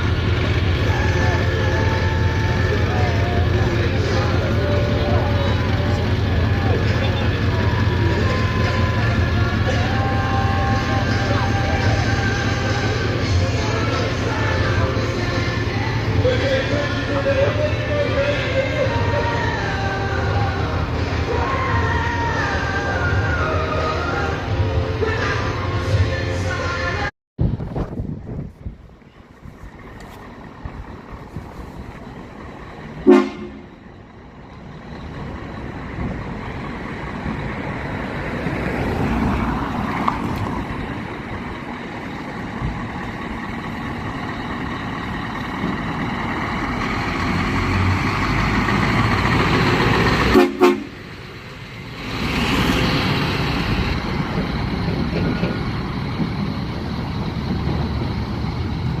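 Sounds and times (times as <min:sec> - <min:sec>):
truck engine running: 0:00.0 - 0:59.0
truck horn toots: 0:33.0 - 0:33.8, 0:50.2 - 0:51.1.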